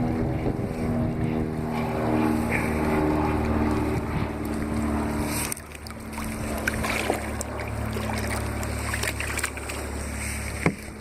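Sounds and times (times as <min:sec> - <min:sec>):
steady low hum: 0:00.0 - 0:11.0
water dripping and lapping: 0:03.2 - 0:11.0.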